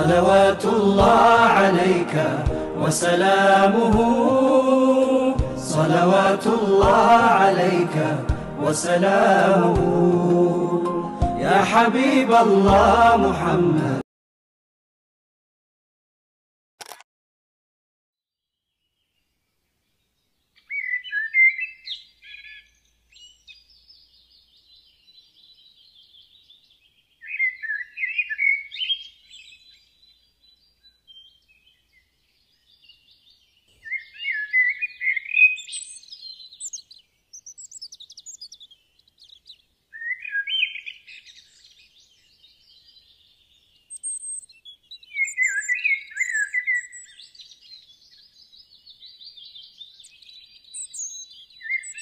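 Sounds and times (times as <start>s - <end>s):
bird chirping phrase: 18.4s - 52.0s.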